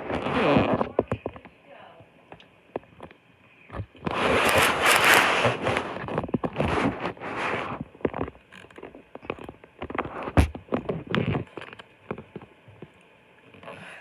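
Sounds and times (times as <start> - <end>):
raindrops knocking: 0.0 - 1.6, 2.3 - 13.0.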